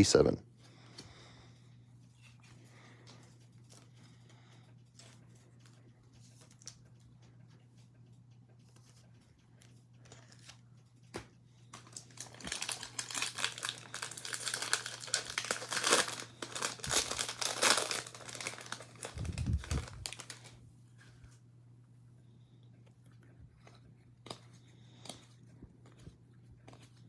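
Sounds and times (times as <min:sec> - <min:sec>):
plastic wrapper tearing and crinkling: 0:11.7 - 0:20.6.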